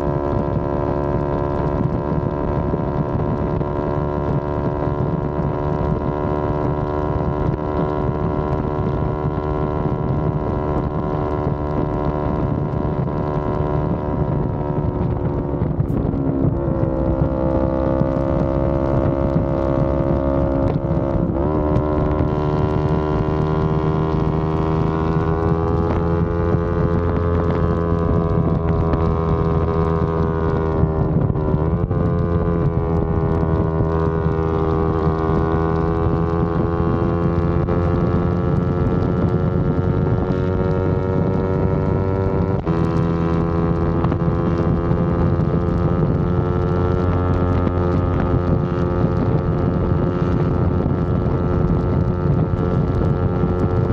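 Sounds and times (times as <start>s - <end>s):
motorcycle engine running: 0.0s - 53.9s
wind noise on microphone: 0.0s - 53.9s.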